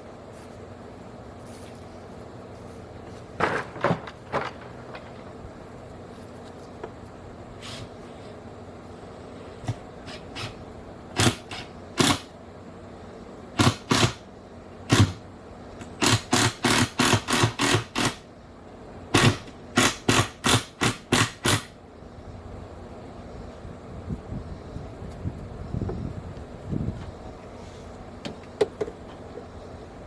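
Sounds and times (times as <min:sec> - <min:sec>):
hammer driving nails into wood: 0:13.6 - 0:14.2, 0:15.9 - 0:18.2, 0:19.2 - 0:21.7.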